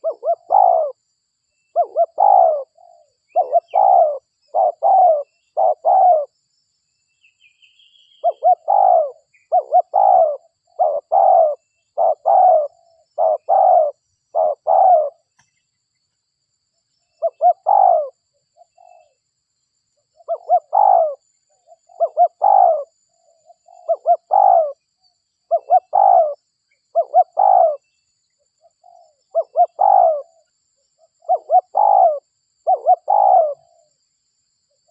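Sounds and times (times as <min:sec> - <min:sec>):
dove cooing: 0:00.0 - 0:01.0, 0:01.7 - 0:06.3, 0:08.2 - 0:15.3, 0:17.2 - 0:19.2, 0:20.2 - 0:24.8, 0:25.5 - 0:27.8, 0:28.6 - 0:30.4, 0:31.0 - 0:33.9
small bird chirping: 0:00.0 - 0:34.0.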